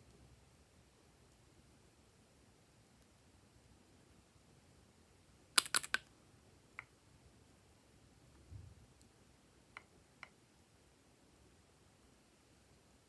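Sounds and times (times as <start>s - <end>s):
sharp clicks: 5.6s - 6.0s.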